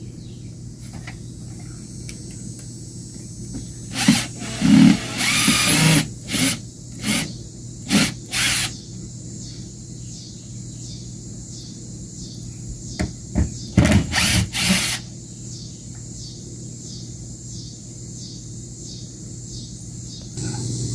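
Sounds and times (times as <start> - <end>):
power drill running in bursts: 3.9 - 8.8, 13.8 - 15.1.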